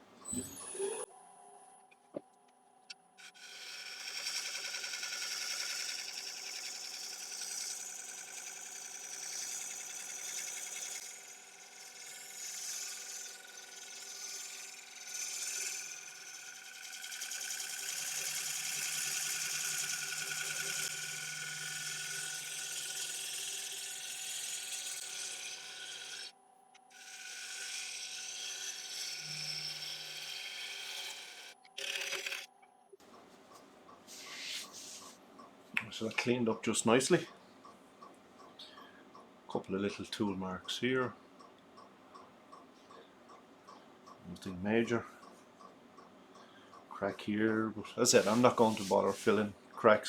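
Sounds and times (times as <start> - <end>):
lathe motor hum: 3.2 - 26.3, 27.0 - 32.4
gouge cutting wood hiss: 3.4 - 26.3, 48.0 - 49.5.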